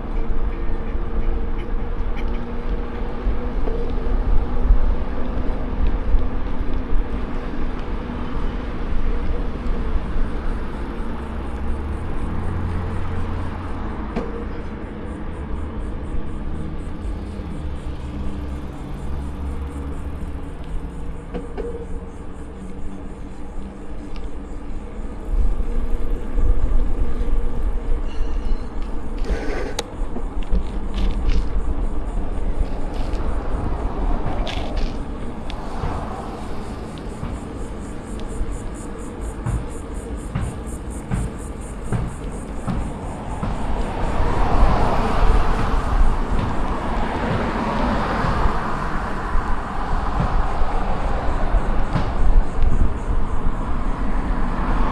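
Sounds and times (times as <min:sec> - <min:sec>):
rushing road noise: 0:00.0 - 0:54.9
wind buffeting microphone: 0:23.3 - 0:54.9.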